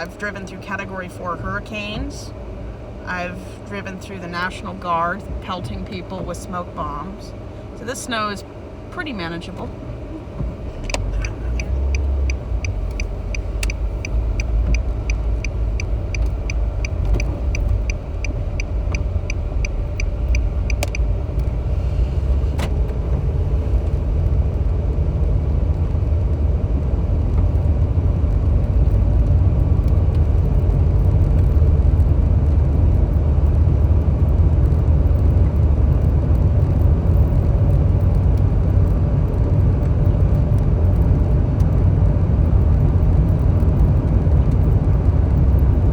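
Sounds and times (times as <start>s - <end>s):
car road noise: 0.0s - 45.9s
turn signal ticking: 10.2s - 24.9s.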